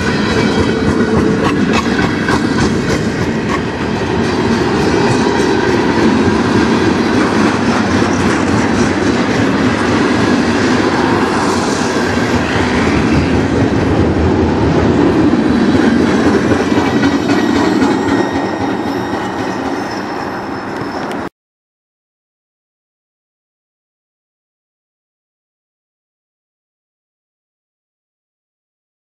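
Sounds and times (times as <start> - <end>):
freight train wheels rumbling: 0.0 - 21.3.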